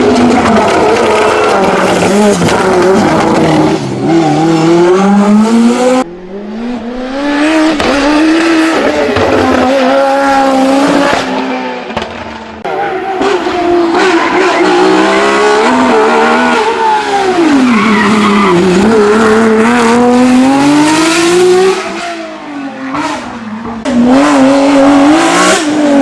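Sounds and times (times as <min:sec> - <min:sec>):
race car engine accelerating: 0:00.0 - 0:12.0.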